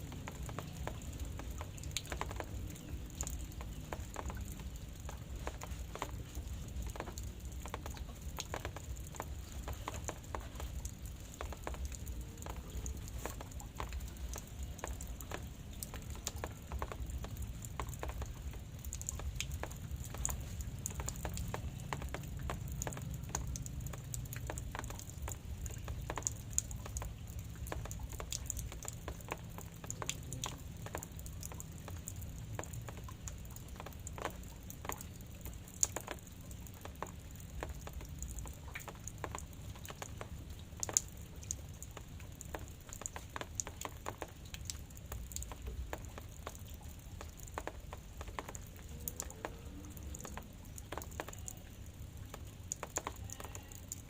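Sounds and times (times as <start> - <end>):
faint hiss of rain: 0.0 - 54.0
raindrops tapping: 0.0 - 54.0.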